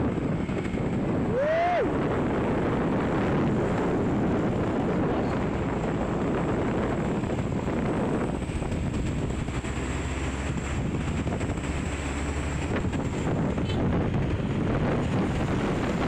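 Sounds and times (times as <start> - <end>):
traffic noise: 0.0 - 16.0
wind on microphone: 0.0 - 16.0.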